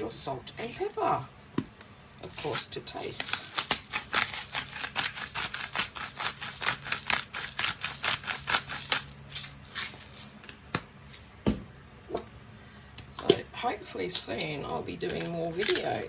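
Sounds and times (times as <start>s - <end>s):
salt and pepper grinders clicking: 2.2s - 10.4s, 15.1s - 16.0s.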